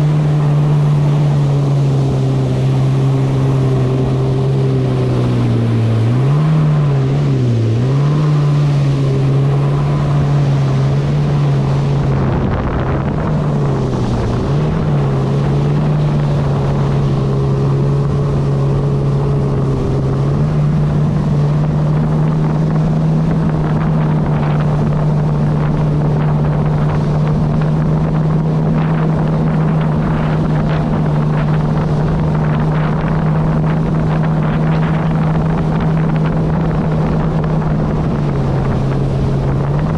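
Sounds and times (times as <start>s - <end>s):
jet ski engine running: 0.0s - 39.9s
wind on microphone: 0.0s - 39.9s.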